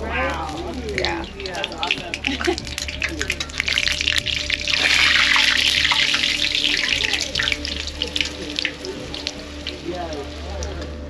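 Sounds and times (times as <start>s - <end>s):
dough sizzling in hot oil: 0.3s - 10.8s.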